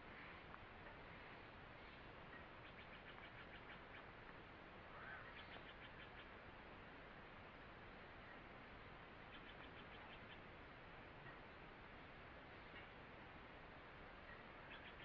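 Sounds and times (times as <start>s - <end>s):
soft steady forest hiss: 0.0s - 15.0s
small bird chirping: 1.8s - 4.1s, 5.0s - 6.3s, 9.3s - 10.5s, 14.2s - 15.0s.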